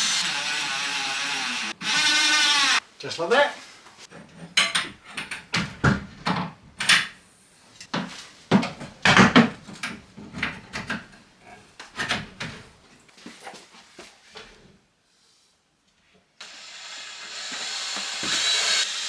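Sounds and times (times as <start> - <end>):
wooden cabinet parts knocking: 8.5 - 11.1.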